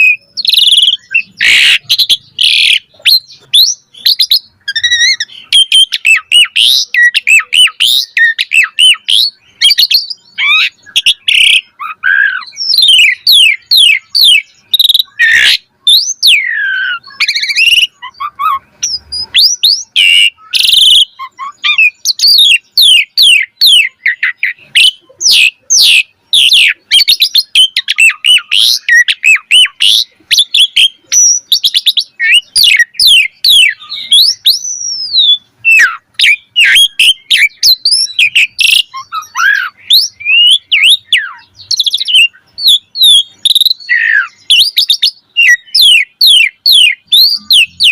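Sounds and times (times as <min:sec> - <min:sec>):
starling singing: 0:00.0 - 0:47.9.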